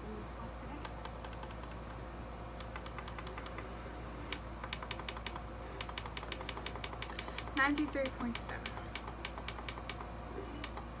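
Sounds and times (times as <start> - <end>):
faint low hum: 0.0 - 11.0
radio buttons clicking: 4.3 - 10.8.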